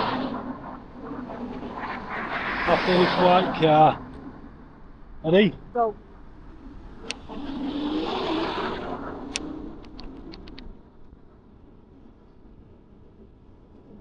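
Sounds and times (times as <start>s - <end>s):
car passing by: 0.0s - 4.5s, 6.6s - 10.3s
sharp clicks: 9.3s - 10.7s.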